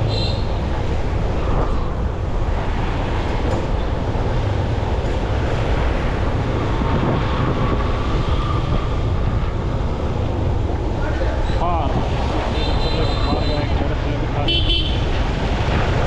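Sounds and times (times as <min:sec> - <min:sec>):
city traffic: 0:00.0 - 0:16.0
wind on microphone: 0:00.0 - 0:16.0.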